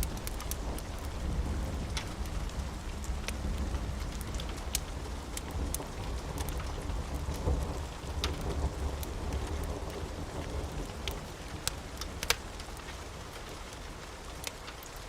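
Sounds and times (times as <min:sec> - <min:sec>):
sharp ticks and pops: 0:00.0 - 0:01.2, 0:01.9 - 0:09.7, 0:11.0 - 0:13.0
distant thunder rumbling: 0:00.0 - 0:11.2
rain hissing: 0:00.0 - 0:14.4.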